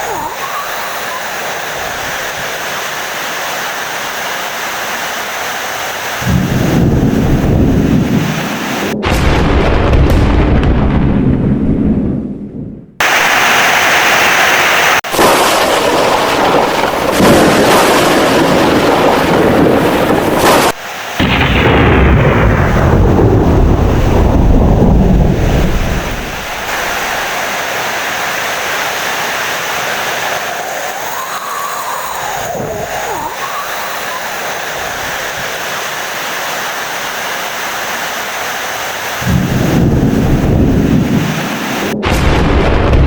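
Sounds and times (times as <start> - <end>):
heavy rain: 0.0 - 10.5, 13.0 - 43.0
rolling thunder: 6.2 - 13.6, 15.0 - 35.6, 39.2 - 43.0.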